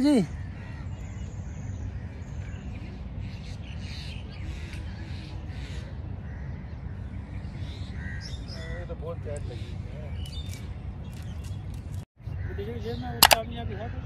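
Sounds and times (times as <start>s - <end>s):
bird cawing: 0.0s - 9.9s, 12.3s - 13.1s.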